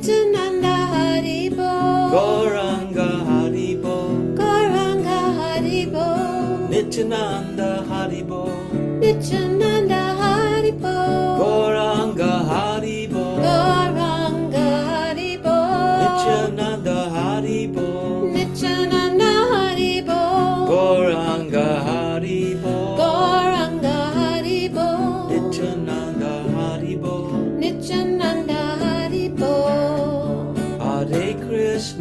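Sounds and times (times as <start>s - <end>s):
voices singing a chant: 10.2s - 29.8s.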